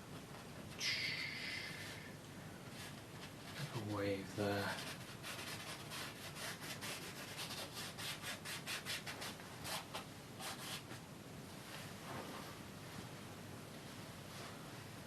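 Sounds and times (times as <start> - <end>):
brush scrubbing on canvas: 4.6 - 10.9.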